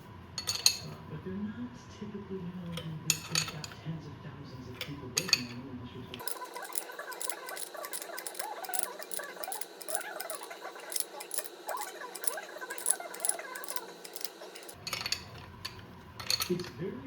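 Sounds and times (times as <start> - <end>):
metallic clicks of hand tools: 6.2 - 16.7.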